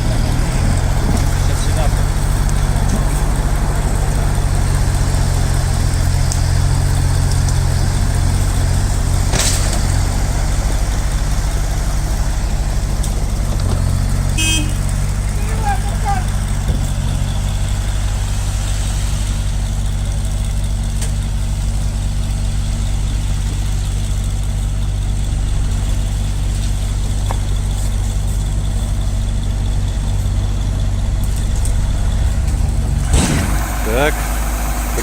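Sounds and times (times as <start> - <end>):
heavy vehicle engine idling: 0.0 - 35.0.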